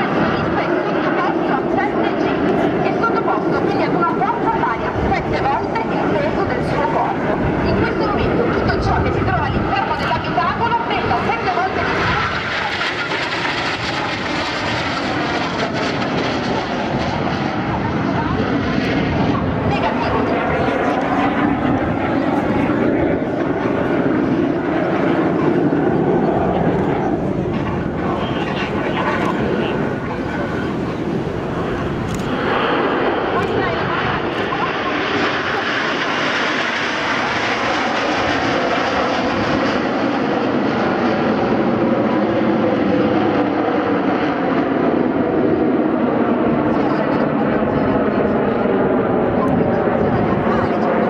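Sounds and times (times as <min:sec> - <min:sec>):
jets flying overhead: 0:00.0 - 0:51.0.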